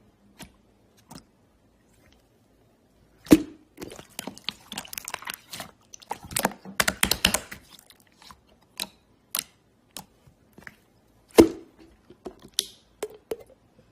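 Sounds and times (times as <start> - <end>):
deep slime pop: 3.2 - 3.7, 11.3 - 11.8.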